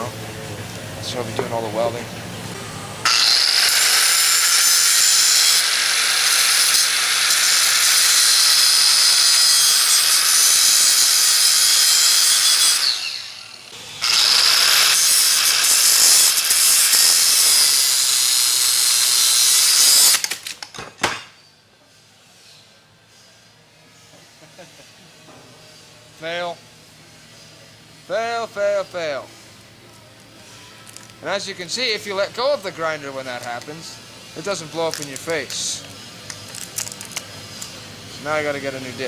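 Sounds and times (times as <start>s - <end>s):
angle grinder cutting metal: 3.0s - 20.4s.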